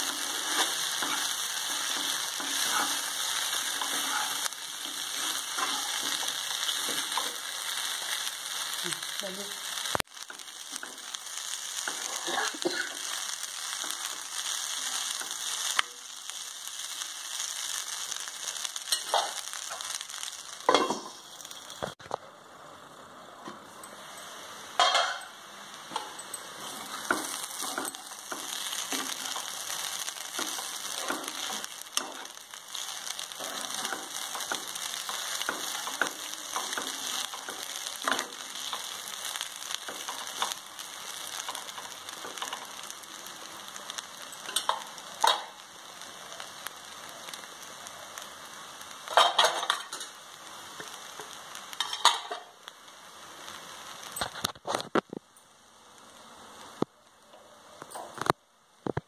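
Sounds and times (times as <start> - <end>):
spatula scraping a pan: 0.0 - 8.2, 26.1 - 42.9
rice sizzling in a pan: 0.0 - 59.0.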